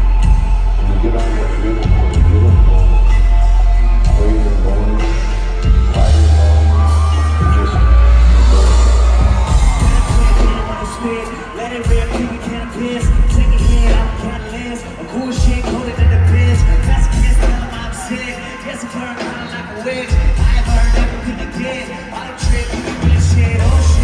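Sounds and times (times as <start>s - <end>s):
booming bass notes: 0.0s - 18.1s, 23.0s - 24.0s
lead vocal singing: 0.0s - 24.0s
reggae-rock band playing live: 0.0s - 24.0s.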